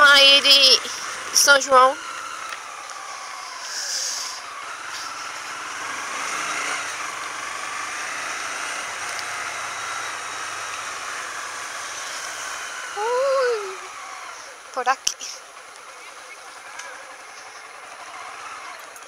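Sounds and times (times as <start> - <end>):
motorcycle engine running: 0.0 - 19.0
short hiss: 3.6 - 5.2.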